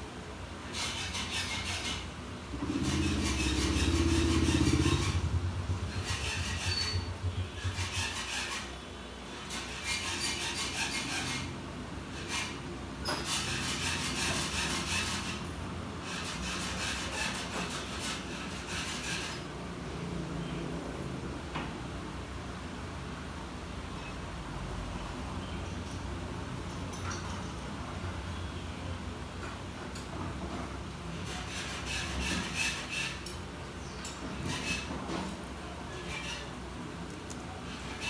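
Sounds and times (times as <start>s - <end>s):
rubbing or scraping strokes: 0.8s - 8.7s.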